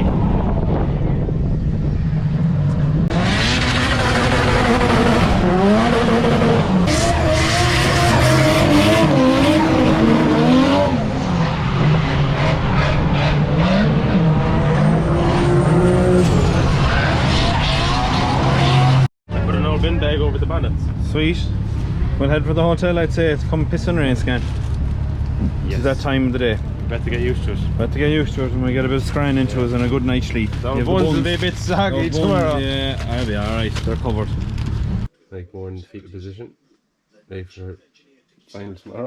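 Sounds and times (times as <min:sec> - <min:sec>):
car engine revving hard: 0:03.1 - 0:19.1.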